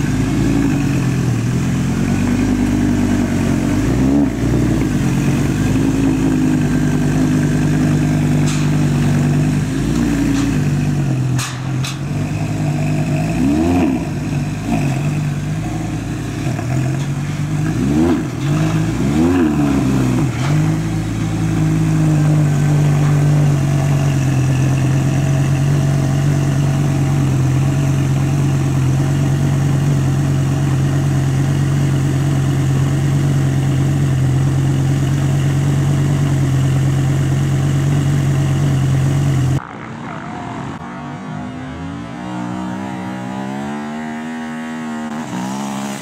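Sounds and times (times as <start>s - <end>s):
sports car engine idling: 0.0s - 40.2s
quieter engine note rising and falling: 0.0s - 46.0s.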